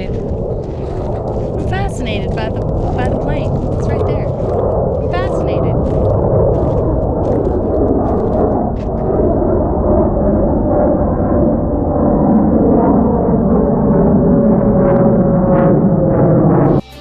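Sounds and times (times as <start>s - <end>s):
aircraft engine rumble: 0.0s - 16.6s.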